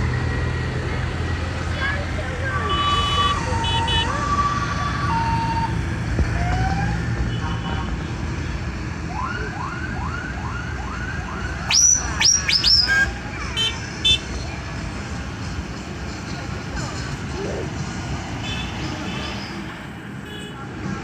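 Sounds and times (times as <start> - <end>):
tractor engines rumbling: 0.0 - 21.0
horns and siren tones: 2.5 - 8.2.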